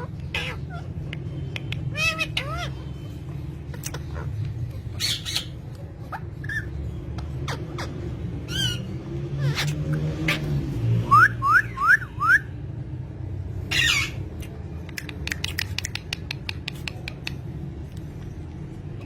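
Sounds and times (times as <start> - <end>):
bird whistling rising notes: 11.0 - 12.5.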